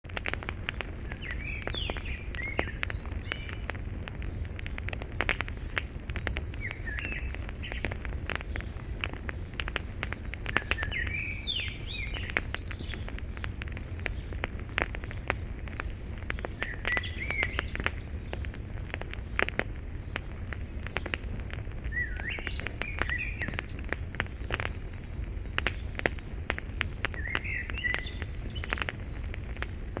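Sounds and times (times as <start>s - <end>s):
wood fire crackling and popping: 0.0s - 30.0s
bird singing: 0.8s - 3.7s, 6.5s - 8.7s, 10.2s - 14.4s, 15.8s - 18.5s, 21.8s - 24.0s, 27.1s - 29.3s.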